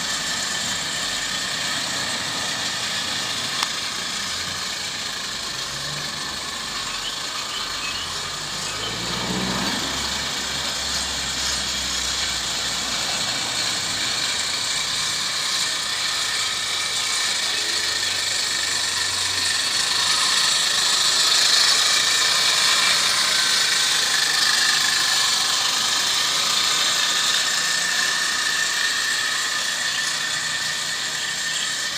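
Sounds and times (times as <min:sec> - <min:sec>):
steam engine hissing: 0:00.0 - 0:31.9.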